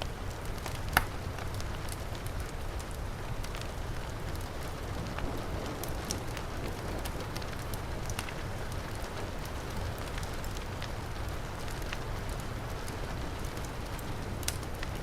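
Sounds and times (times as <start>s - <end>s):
heavy rain: 0.0s - 15.0s
wood fire crackling: 0.0s - 15.0s.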